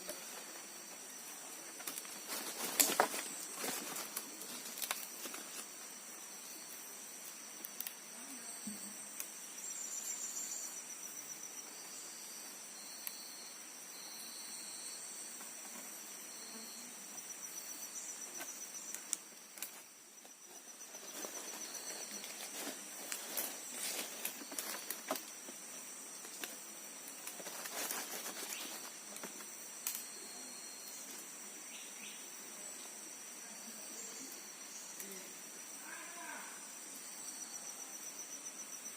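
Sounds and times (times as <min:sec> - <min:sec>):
faint clicks and rustles: 0:00.0 - 0:05.8, 0:18.4 - 0:30.0
forest insects droning: 0:00.0 - 0:38.9.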